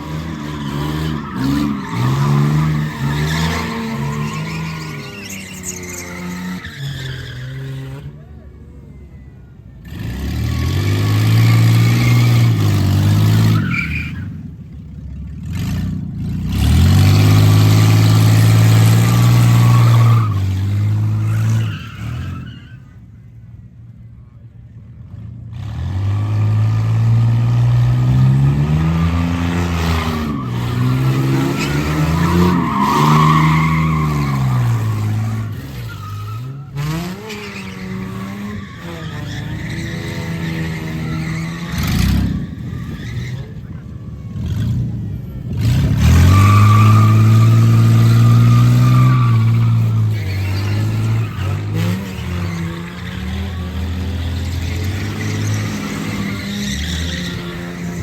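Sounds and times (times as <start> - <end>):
car engine revving: 0.0 - 8.4, 25.6 - 58.0
tyre squeal: 0.0 - 9.3, 13.2 - 14.4, 17.3 - 23.0, 28.8 - 44.7, 45.8 - 58.0.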